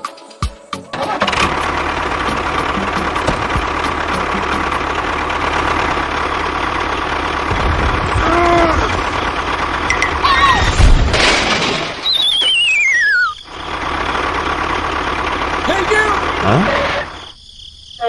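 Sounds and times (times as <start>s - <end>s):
mini tractor engine drone: 1.0s - 17.3s.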